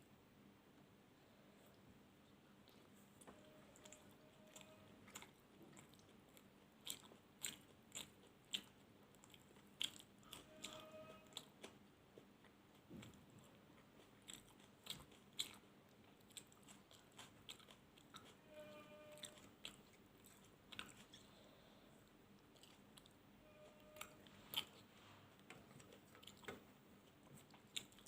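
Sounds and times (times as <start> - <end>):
chewing and biting: 2.7 - 18.4, 19.1 - 21.5, 22.4 - 23.2, 23.8 - 28.0
faint steady tone: 10.2 - 11.4, 18.3 - 19.6, 21.1 - 25.9.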